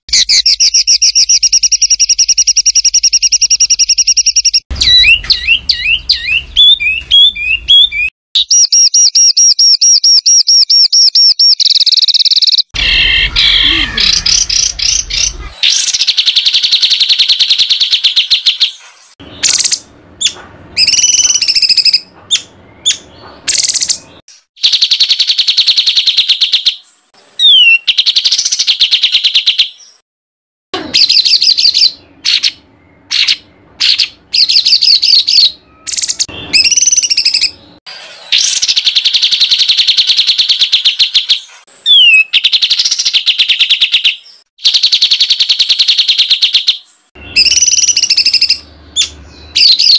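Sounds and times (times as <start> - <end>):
whistled bird notes: 0.1 - 30.0, 31.0 - 37.6, 38.3 - 49.9
songbird harsh rapid trills: 11.8 - 24.0.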